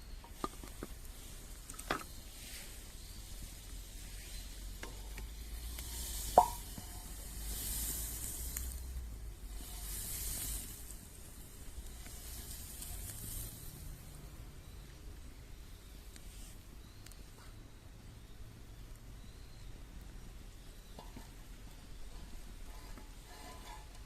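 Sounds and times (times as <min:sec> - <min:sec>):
bread sizzling in a pan: 0:00.0 - 0:15.2, 0:20.5 - 0:24.0.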